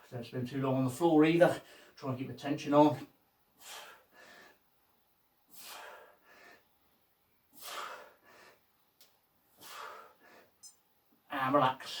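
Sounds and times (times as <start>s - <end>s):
man breathing hard: 1.6s - 2.0s, 3.6s - 4.8s, 5.4s - 8.8s, 9.4s - 10.6s.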